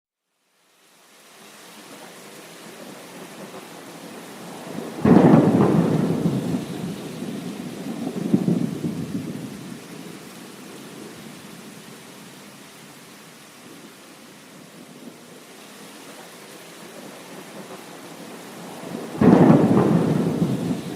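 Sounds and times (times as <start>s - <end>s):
steady rain: 0.2s - 20.9s
thunder rumbling: 4.2s - 12.0s, 16.8s - 20.9s.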